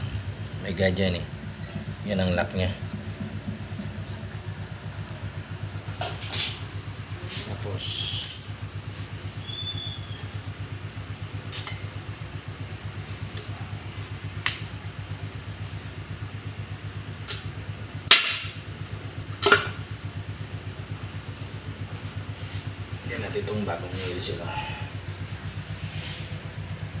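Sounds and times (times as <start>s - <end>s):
low hum: 0.0s - 17.4s.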